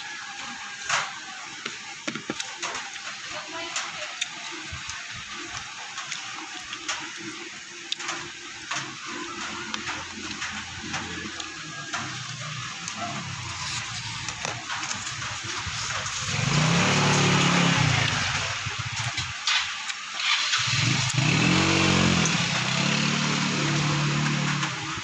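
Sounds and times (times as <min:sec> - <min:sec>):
engine running: 0:10.4 - 0:19.6, 0:20.2 - 0:25.0.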